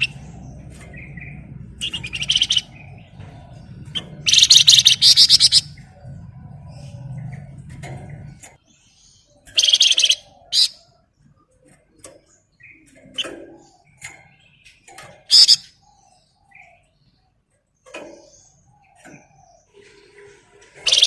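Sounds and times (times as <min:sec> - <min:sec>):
songbird trilling: 0:00.0 - 0:06.0, 0:09.3 - 0:10.9, 0:15.3 - 0:16.8
low hum: 0:00.0 - 0:08.6
soft bird chirps: 0:00.0 - 0:21.0.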